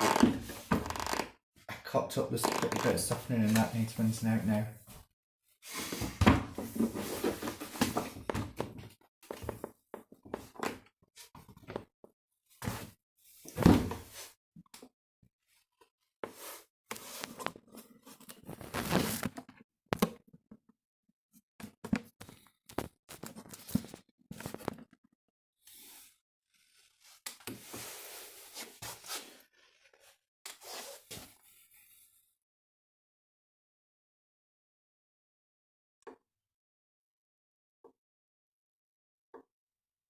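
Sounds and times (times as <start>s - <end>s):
rustling and scraping: 5.7s - 8.2s.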